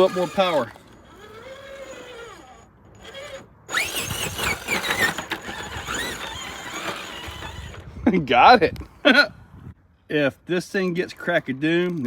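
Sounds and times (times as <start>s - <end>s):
electric motor and drivetrain whining: 0.0s - 8.0s.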